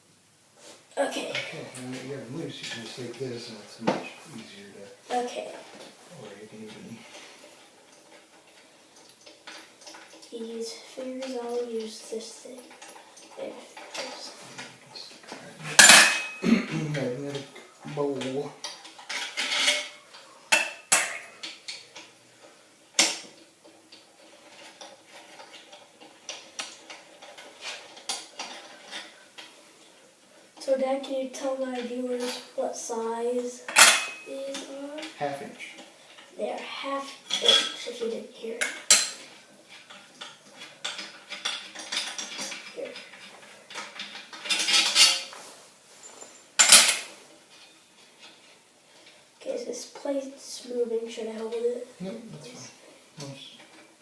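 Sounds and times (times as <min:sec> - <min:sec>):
metal parts and tools clinking: 0:15.6 - 0:16.4, 0:18.2 - 0:22.1, 0:23.0 - 0:29.5, 0:33.7 - 0:35.2, 0:37.3 - 0:45.4, 0:46.0 - 0:49.1
sharp metal clack: 0:15.7 - 0:16.4, 0:33.7 - 0:34.3
metal bolts clinking in bowl: 0:46.0 - 0:47.1.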